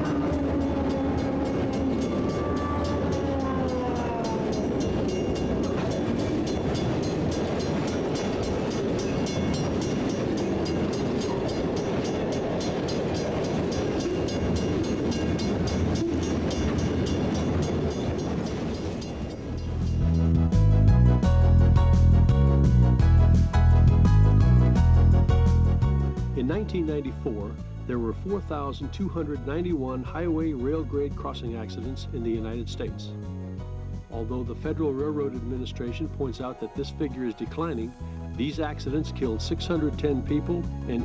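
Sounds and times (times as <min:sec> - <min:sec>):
train horn: 0:00.0 - 0:04.8
rail clicks: 0:00.0 - 0:20.4
train rumbling on rails: 0:00.0 - 0:36.7.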